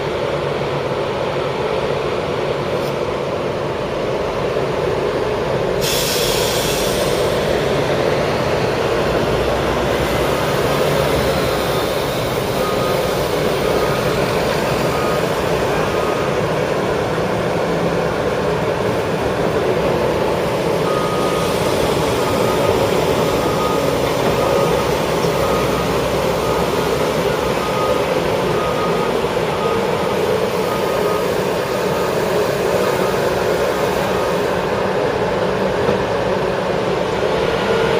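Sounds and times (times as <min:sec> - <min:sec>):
road paving machinery running: 0:00.0 - 0:37.9
brief hiss: 0:05.8 - 0:07.4
backup alarm beeping: 0:11.4 - 0:16.5, 0:20.8 - 0:34.2.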